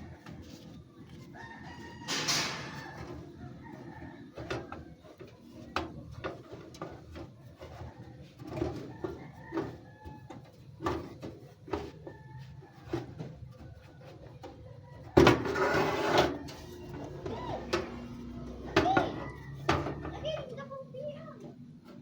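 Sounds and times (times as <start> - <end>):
rooster crowing: 1.3 - 4.4, 14.8 - 20.2.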